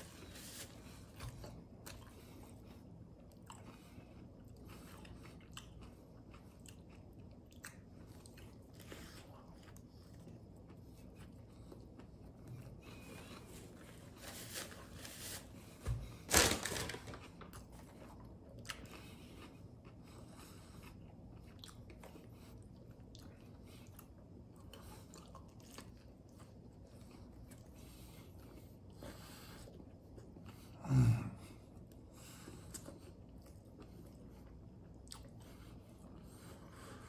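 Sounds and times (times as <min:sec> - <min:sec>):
man chewing crunchy food: 0:00.1 - 0:13.9, 0:17.2 - 0:30.8, 0:31.7 - 0:37.0.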